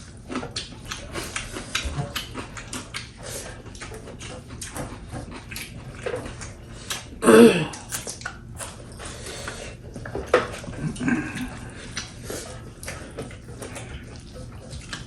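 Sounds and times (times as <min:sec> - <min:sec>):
chewing and lip smacks: 0:00.0 - 0:15.0.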